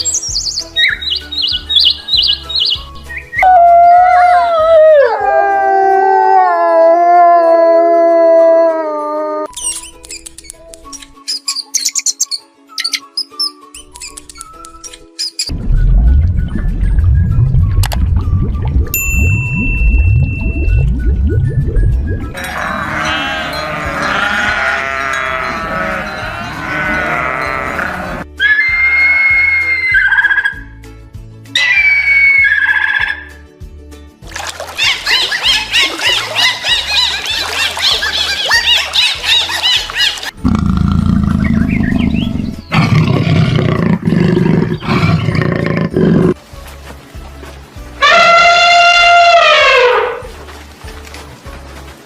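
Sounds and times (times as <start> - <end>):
lion roaring: 22.4 - 28.2, 40.4 - 46.4
sheep bleating: 22.4 - 28.2.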